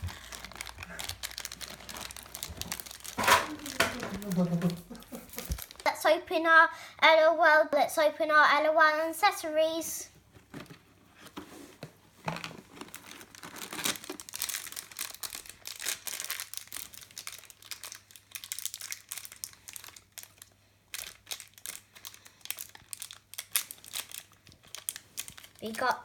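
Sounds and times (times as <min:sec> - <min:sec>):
plastic packets crinkling and tearing: 0:00.0 - 0:05.9, 0:12.2 - 0:26.0.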